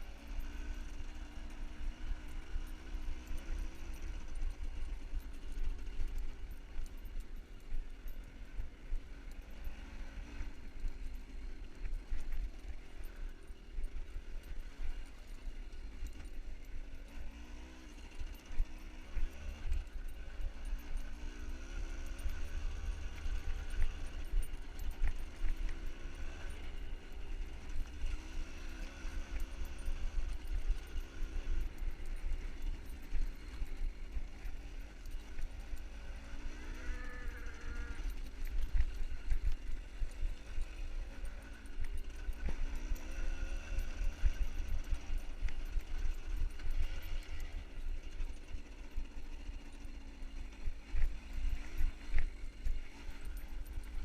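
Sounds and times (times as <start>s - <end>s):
cows mooing: 36.7s - 38.1s.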